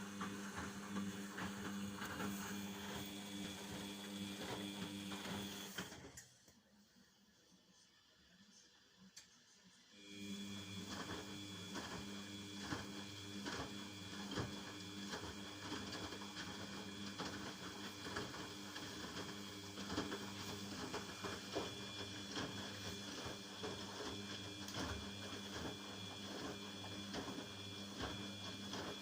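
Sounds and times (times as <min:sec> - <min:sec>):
washing machine motor hum: 0:00.0 - 0:06.2, 0:10.0 - 0:29.0.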